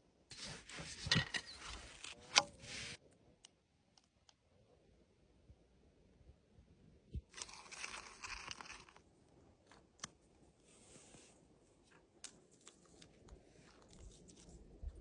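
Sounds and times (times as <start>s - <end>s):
crinkling and tearing: 7.3s - 10.2s, 11.9s - 15.0s.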